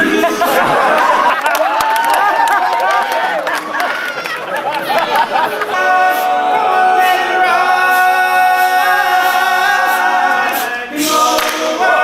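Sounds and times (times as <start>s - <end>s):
male a cappella group singing: 0.0s - 1.3s, 5.2s - 12.0s.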